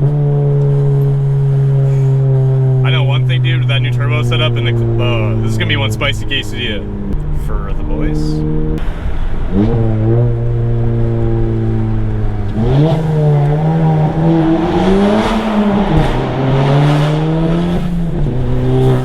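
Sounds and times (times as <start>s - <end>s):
turbocharged car engine revving: 0.0s - 19.0s.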